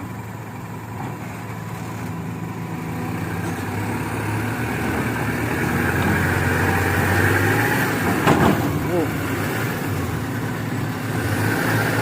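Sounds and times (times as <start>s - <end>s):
diesel truck engine straining: 0.0s - 12.0s.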